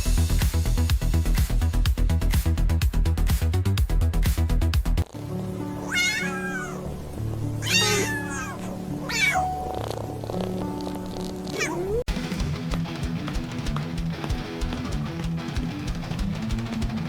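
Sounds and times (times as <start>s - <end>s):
soft background music: 5.0s - 13.2s
cat meowing: 5.8s - 12.1s.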